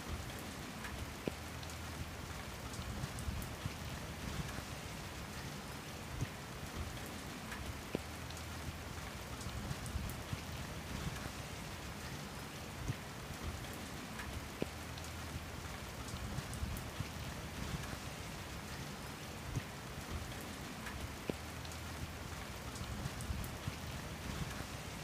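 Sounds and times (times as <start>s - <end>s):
steady rain: 0.0s - 25.0s.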